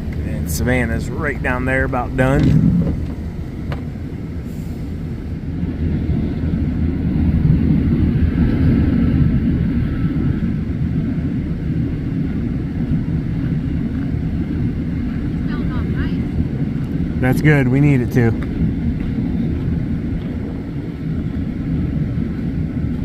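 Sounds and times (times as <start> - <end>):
truck engine rumbling: 0.0 - 23.0.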